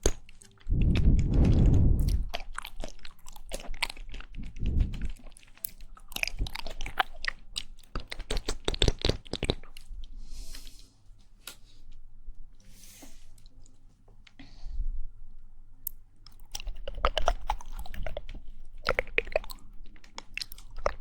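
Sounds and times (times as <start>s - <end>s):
jelly being chewed: 0.0s - 10.6s, 15.8s - 21.0s
soft airy slurps: 0.4s - 6.7s.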